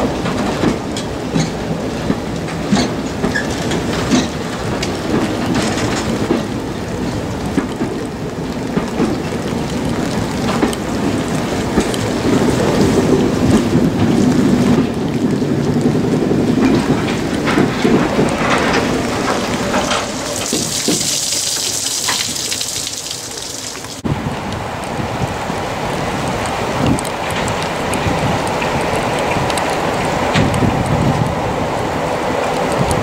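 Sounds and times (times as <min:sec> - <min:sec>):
wind buffeting microphone: 0:00.0 - 0:22.6, 0:23.7 - 0:33.0
railway coaches rumbling: 0:00.0 - 0:33.0
steady rain: 0:00.0 - 0:33.0.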